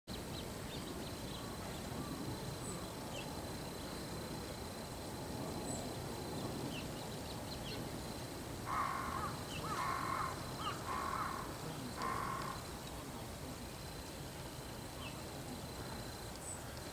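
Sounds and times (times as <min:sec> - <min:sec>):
outdoor background noise: 0:00.1 - 0:16.9
harsh bird calls: 0:08.7 - 0:12.8.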